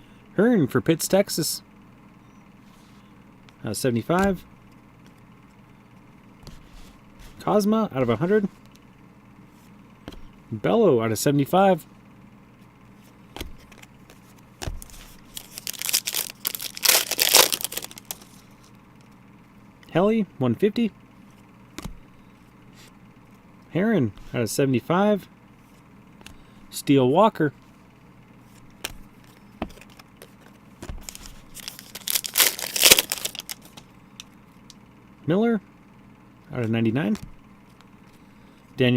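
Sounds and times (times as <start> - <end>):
wrapper crinkling and tearing: 14.8 - 18.4, 31.0 - 33.8.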